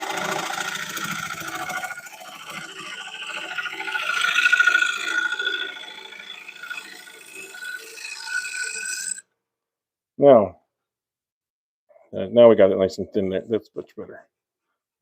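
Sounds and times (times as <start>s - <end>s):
lathe gouge scraping wood: 0.0s - 9.2s.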